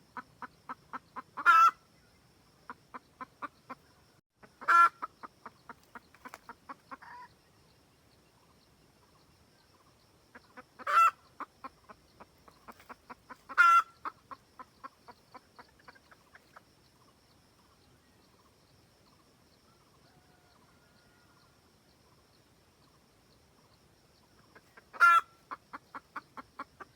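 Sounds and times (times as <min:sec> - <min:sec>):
hen clucking: 0:00.1 - 0:01.8, 0:02.7 - 0:07.3, 0:10.3 - 0:16.7, 0:24.4 - 0:26.9.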